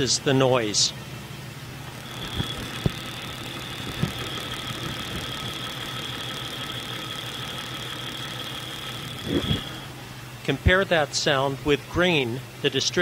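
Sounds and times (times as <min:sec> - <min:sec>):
high-pitched engine whine: 0:00.8 - 0:10.9
engine idling through stethoscope: 0:01.1 - 0:11.8
sharp engine ticks: 0:01.8 - 0:10.0.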